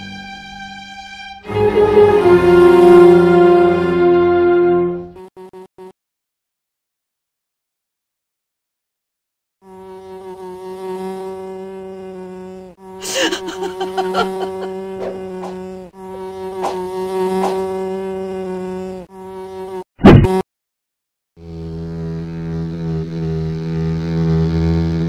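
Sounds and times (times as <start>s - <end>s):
cartoon insect buzzing: 5.2s - 5.9s, 9.6s - 20.4s, 21.4s - 25.0s.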